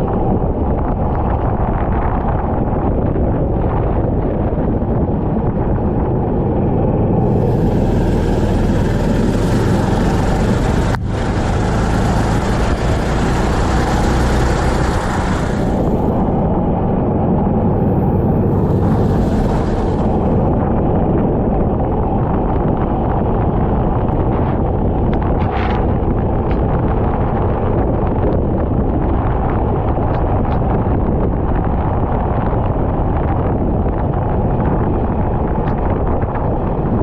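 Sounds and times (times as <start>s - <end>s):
wind buffeting microphone: 0.0s - 37.0s
kart engine running: 7.1s - 21.6s.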